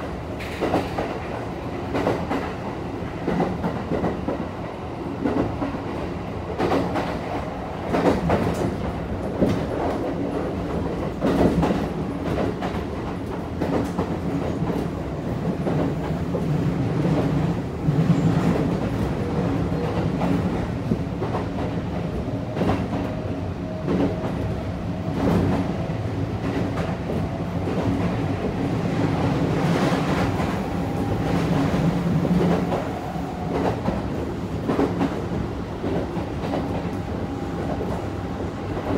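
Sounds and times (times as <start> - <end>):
train car rumble: 0.0 - 38.9.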